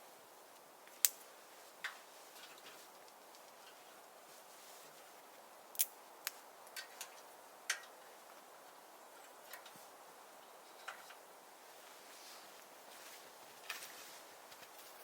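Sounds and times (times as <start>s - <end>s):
faint steady hiss: 0.0s - 15.0s
firewood crackling and popping: 0.5s - 4.0s, 4.9s - 9.8s.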